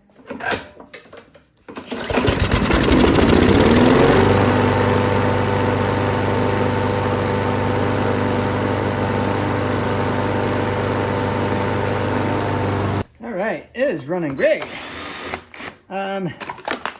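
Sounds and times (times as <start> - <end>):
lawn mower engine running: 1.8 - 13.1.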